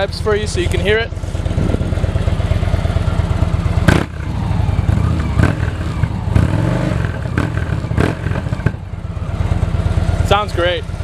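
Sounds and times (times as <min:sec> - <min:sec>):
motorcycle engine revving: 0:00.0 - 0:11.0
sharp exhaust crack: 0:03.6 - 0:08.9.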